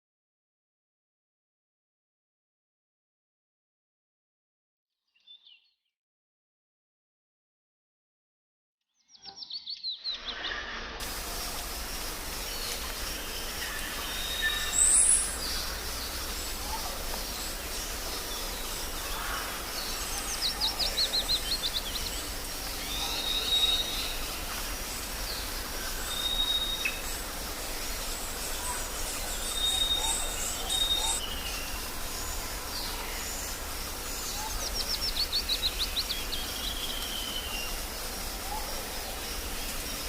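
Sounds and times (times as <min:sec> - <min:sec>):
outdoor background noise: 0:09.2 - 0:40.0
birds calling: 0:09.6 - 0:40.0.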